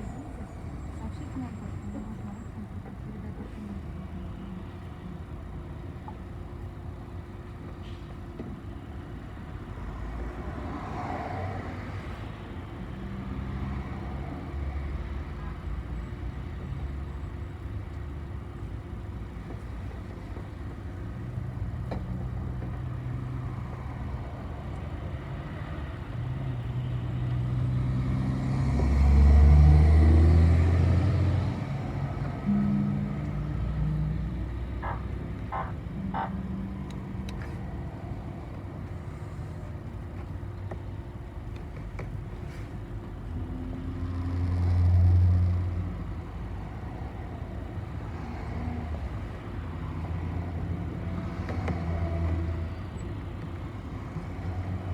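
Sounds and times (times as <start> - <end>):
road noise: 0.0 - 54.9
bus engine running: 12.0 - 54.9.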